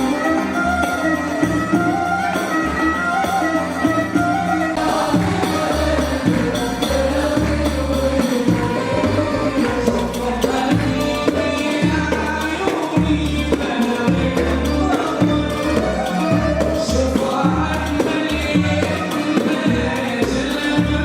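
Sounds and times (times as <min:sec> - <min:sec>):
band playing: 0:00.0 - 0:21.0
bass line: 0:00.0 - 0:21.0
choir singing: 0:04.2 - 0:21.0.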